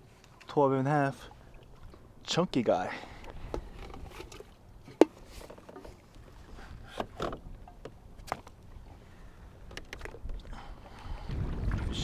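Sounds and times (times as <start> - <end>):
wind on microphone: 10.0 - 12.0.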